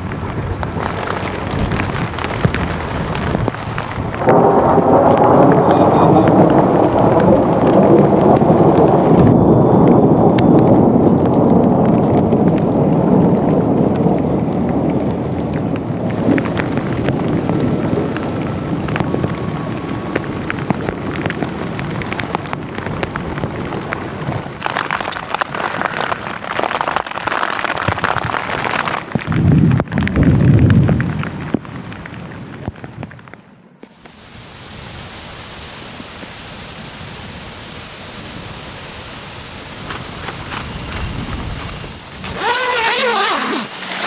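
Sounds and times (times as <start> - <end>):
rolling thunder: 0.0 - 33.2
heavy rain falling: 0.0 - 44.0.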